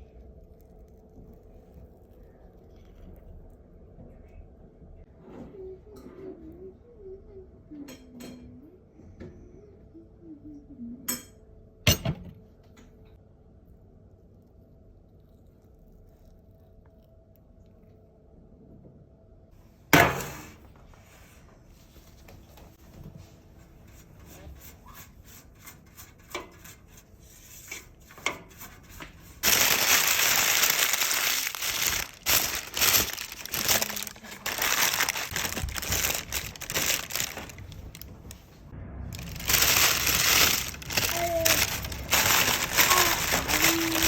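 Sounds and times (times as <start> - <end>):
loud uneven rustling: 29.4 - 38.6, 39.2 - 44.0.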